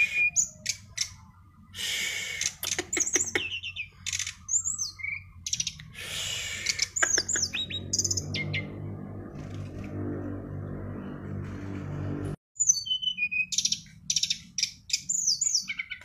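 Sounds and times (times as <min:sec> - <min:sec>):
songbird singing: 0:00.0 - 0:09.0, 0:12.6 - 0:16.0.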